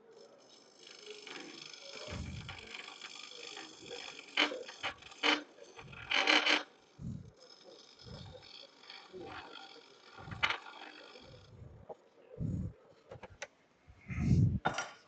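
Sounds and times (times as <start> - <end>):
lathe tool scraping wood: 0.0 - 12.0.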